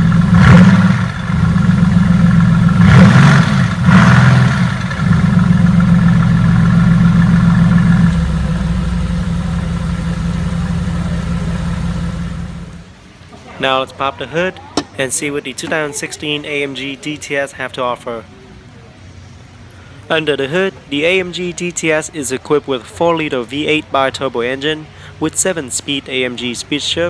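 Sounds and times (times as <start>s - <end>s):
car engine revving: 0.0s - 12.9s
car engine idling: 0.0s - 13.2s.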